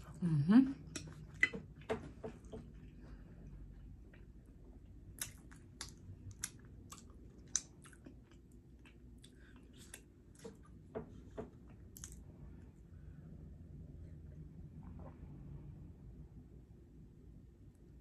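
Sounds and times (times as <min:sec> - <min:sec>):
person chewing food: 0:00.8 - 0:12.3.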